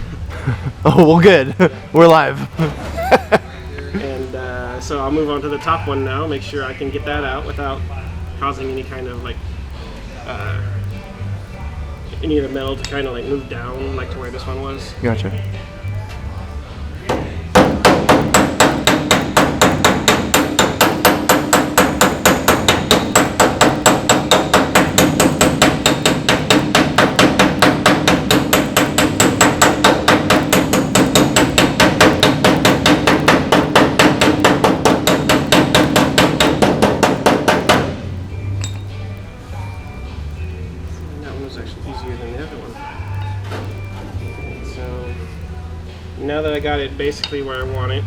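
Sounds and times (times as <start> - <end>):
hammer tapping on sheet metal: 17.0 - 38.1.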